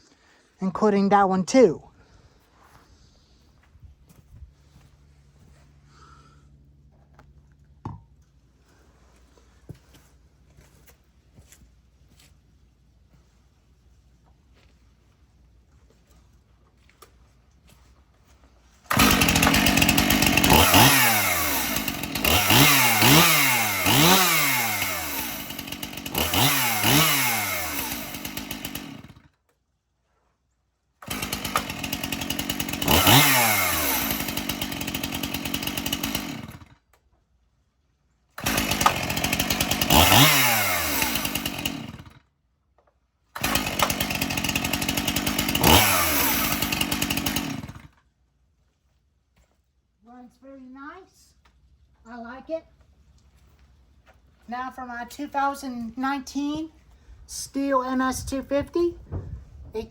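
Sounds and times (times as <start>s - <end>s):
chainsaw revving: 18.9s - 29.3s, 31.0s - 36.8s, 38.4s - 42.2s, 43.4s - 48.0s.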